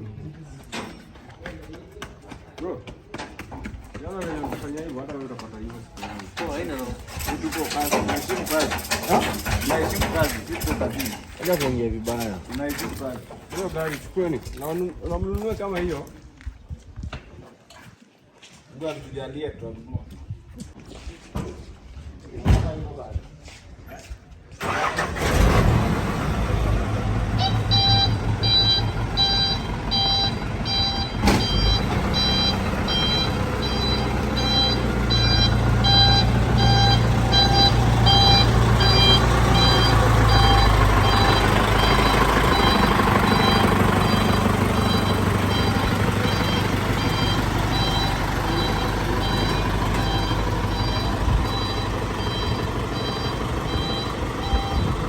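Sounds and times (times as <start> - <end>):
vehicle engine running: 24.6 - 55.0
reversing warning beeps: 27.4 - 55.0.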